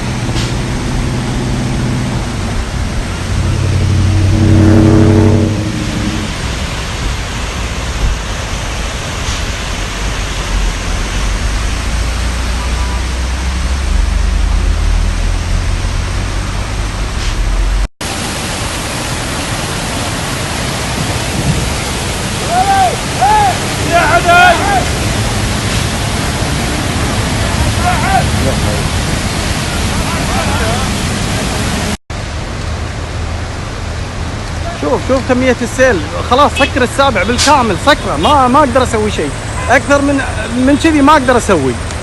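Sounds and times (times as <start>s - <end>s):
vehicle passing: 0.0s - 7.0s
rushing floodwater and rain: 0.0s - 42.0s.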